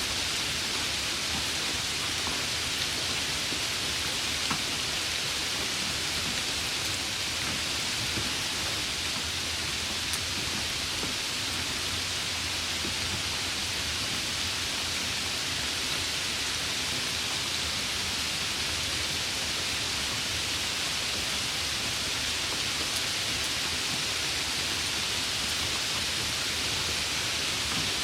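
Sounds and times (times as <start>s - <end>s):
steady rain hissing: 0.0s - 28.0s
faint raindrop ticks: 9.9s - 11.2s.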